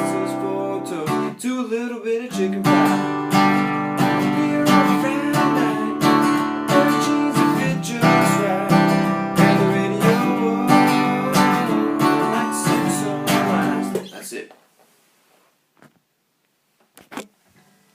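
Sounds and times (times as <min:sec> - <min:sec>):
acoustic guitar strumming: 0:00.0 - 0:14.1.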